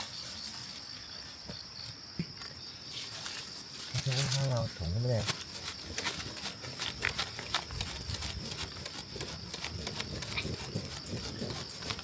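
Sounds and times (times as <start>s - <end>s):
rustling and crackling clicks: 5.2s - 12.0s.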